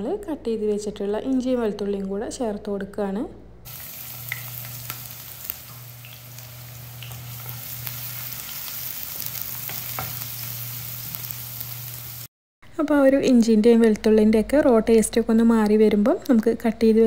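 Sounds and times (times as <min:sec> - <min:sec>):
garlic and ginger sizzling in oil: 0:03.7 - 0:12.3.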